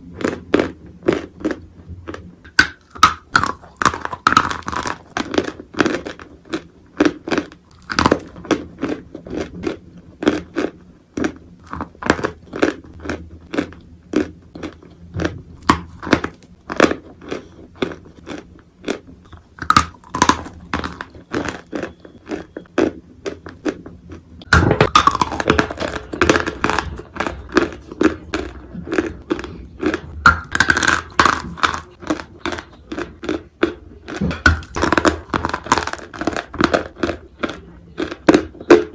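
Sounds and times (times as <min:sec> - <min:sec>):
person crunching dry clay: 0:24.4 - 0:38.8.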